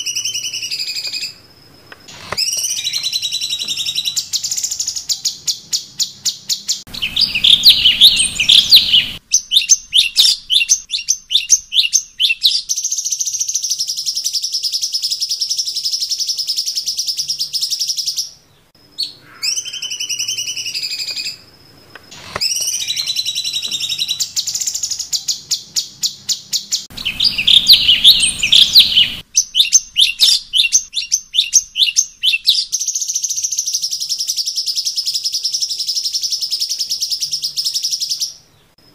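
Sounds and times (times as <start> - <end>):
bird chattering and trilling: 2.1 - 21.5, 22.1 - 38.4
falling whistles: 22.1 - 32.6.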